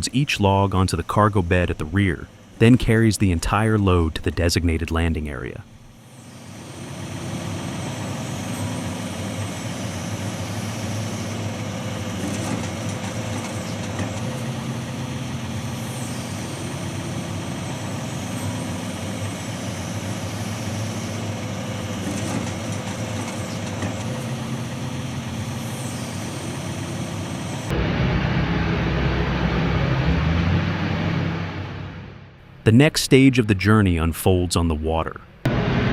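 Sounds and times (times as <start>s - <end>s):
diesel engine running: 0.0s - 32.7s, 35.4s - 35.9s.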